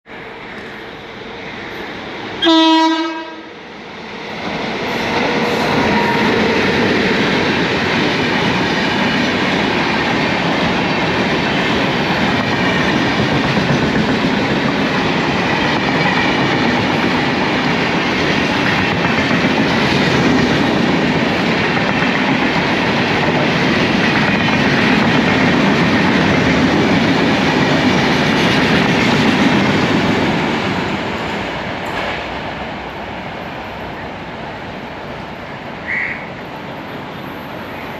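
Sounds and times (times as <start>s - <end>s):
train coaches rushing over rails: 0.1s - 37.9s
train horn blast: 2.4s - 3.5s
wheels clickety-clack: 7.3s - 32.3s.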